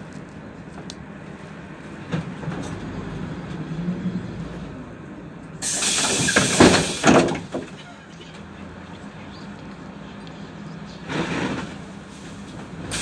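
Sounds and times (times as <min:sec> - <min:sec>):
bus engine humming: 0:00.0 - 0:13.0
compressed air hissing: 0:05.6 - 0:07.2
bus body rattle: 0:05.6 - 0:08.4.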